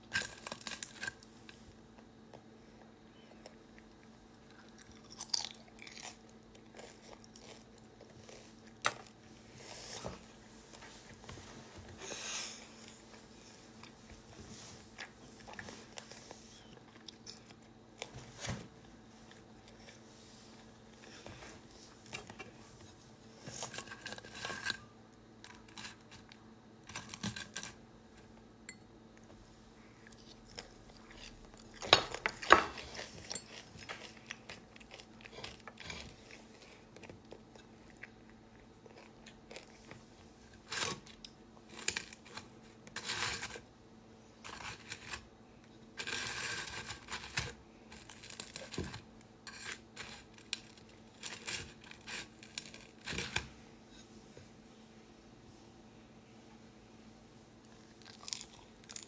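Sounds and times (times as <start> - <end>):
person chewing and crunching: 0.0 - 9.2, 14.8 - 18.1, 29.9 - 43.6, 57.7 - 59.0
faint steady hum: 0.0 - 59.0.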